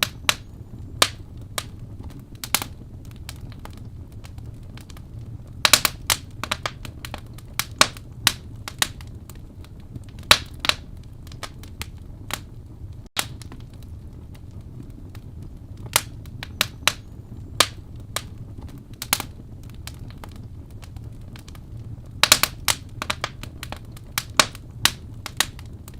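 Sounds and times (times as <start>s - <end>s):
low rumble of burning logs: 0.0s - 25.9s
wood fire popping and snapping: 0.0s - 25.9s.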